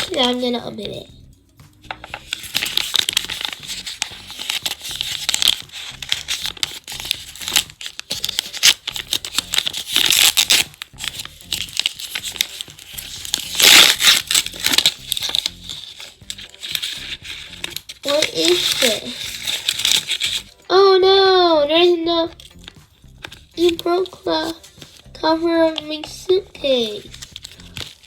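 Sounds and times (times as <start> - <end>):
plastic bag crinkling and tearing: 2.0 - 20.5, 26.8 - 28.0.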